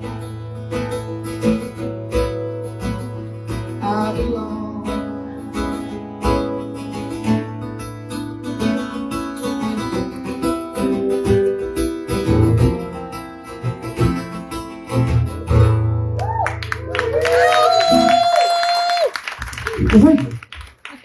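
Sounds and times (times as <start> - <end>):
acoustic guitar strummed: 0.0 - 16.2.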